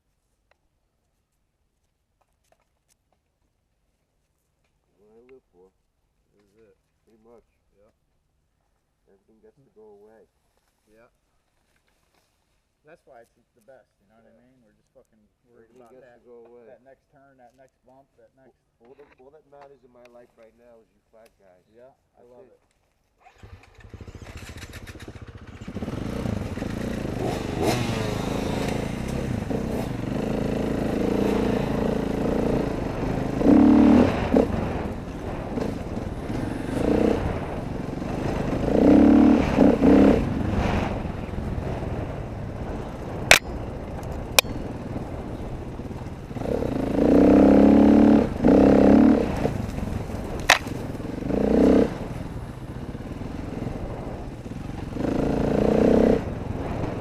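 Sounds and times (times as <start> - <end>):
dirt bike engine revving: 23.3 - 57.0
sharp clicks or knocks: 50.4 - 50.7.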